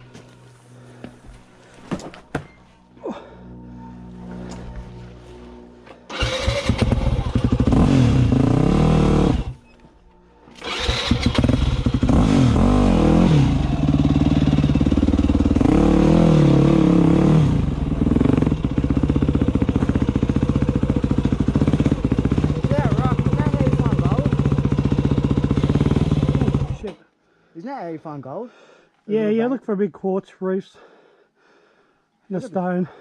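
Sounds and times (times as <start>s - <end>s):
dirt bike engine revving and idling: 6.1s - 9.6s, 10.6s - 27.0s.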